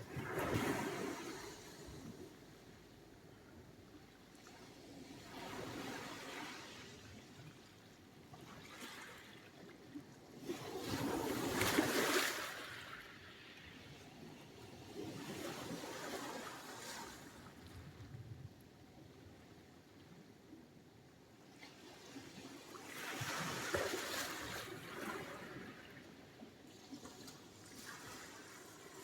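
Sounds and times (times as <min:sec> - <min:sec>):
waves breaking on shore: 0:00.0 - 0:02.4, 0:10.4 - 0:13.6, 0:14.9 - 0:18.0, 0:22.2 - 0:26.0, 0:26.9 - 0:29.0.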